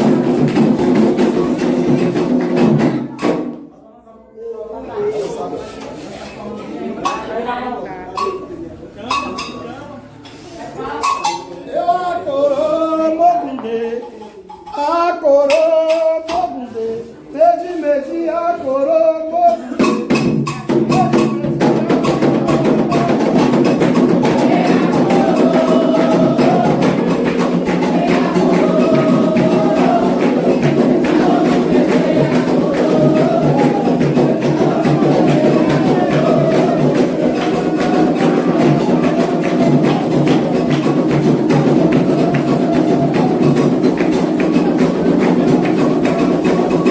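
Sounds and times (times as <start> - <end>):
group singing: 0.0 - 3.4, 10.8 - 46.9
hand drums rhythm: 0.0 - 3.6, 19.6 - 46.9.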